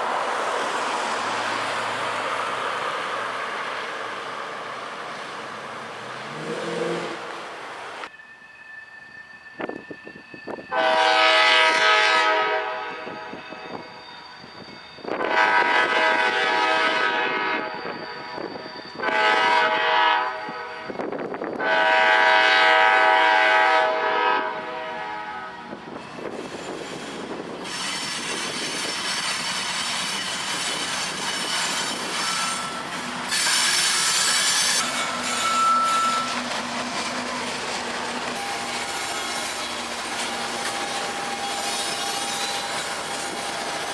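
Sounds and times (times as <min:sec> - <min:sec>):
train air horn blasts: 0:06.4 - 0:07.4, 0:10.7 - 0:13.8, 0:15.0 - 0:21.0, 0:21.6 - 0:25.8
wheel squeals: 0:13.0 - 0:15.3, 0:17.6 - 0:19.0, 0:26.0 - 0:43.9
wheel-on-rail noise: 0:25.9 - 0:43.9.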